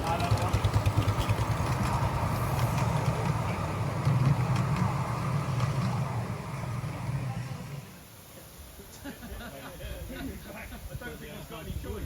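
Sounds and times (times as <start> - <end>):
miniature locomotive rumbling: 0.0 - 8.1.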